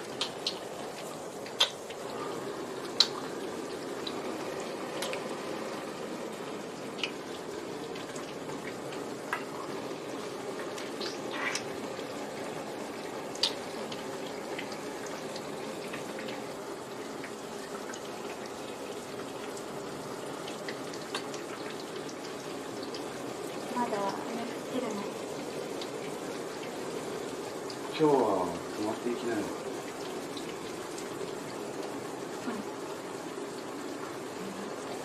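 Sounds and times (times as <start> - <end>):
steady rain hiss: 0.0 - 35.0.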